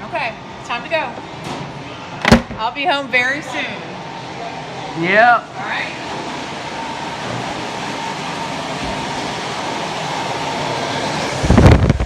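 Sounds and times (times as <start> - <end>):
ventilation fan rushing: 0.0 - 12.0.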